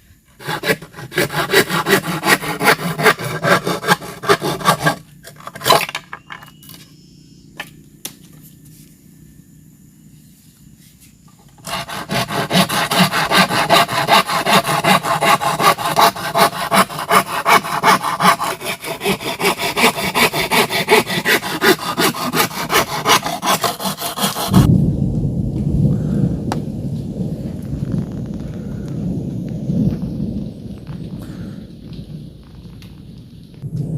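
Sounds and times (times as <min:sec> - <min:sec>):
hand saw cutting bamboo: 0:00.4 - 0:05.9, 0:11.6 - 0:24.6
thunder rolling: 0:24.5 - 0:33.9.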